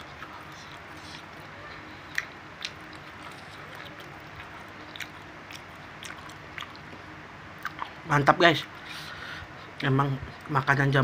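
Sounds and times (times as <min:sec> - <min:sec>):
man chewing with wet smacks: 0:00.0 - 0:08.0
low background hum: 0:00.0 - 0:11.0.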